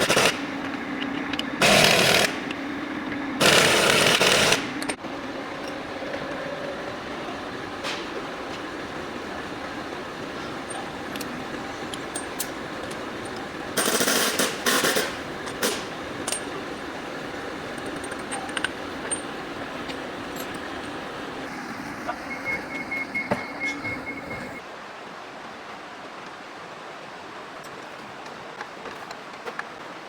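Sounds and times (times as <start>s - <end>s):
background hum: 0.0s - 24.6s
metal clinks: 16.2s - 16.9s, 17.7s - 21.2s
quick high beeps: 22.1s - 24.6s.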